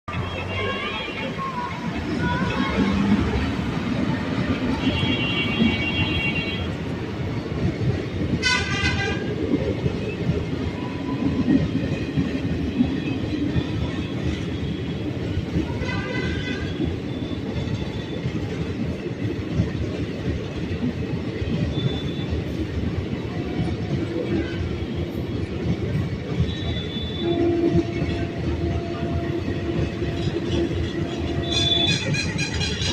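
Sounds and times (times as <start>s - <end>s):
train wheels rumbling: 0.1s - 32.9s
train horn blasts: 4.8s - 6.8s, 8.4s - 9.4s, 15.7s - 16.9s, 26.5s - 32.9s.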